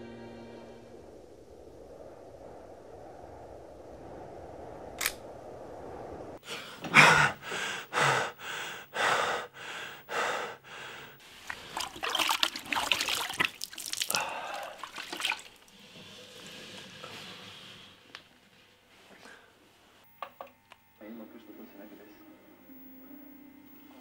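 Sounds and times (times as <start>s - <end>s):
man panting hard: 6.4s - 11.2s
water splashing in a plastic basin: 11.4s - 15.8s.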